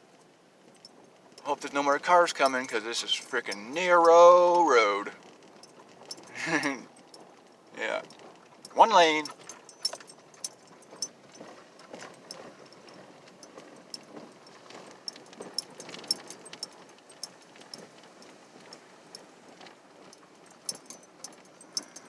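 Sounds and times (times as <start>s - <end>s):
tyres humming on road: 0.0s - 22.0s
keys jingling: 2.2s - 4.2s, 8.7s - 11.2s, 20.2s - 22.0s.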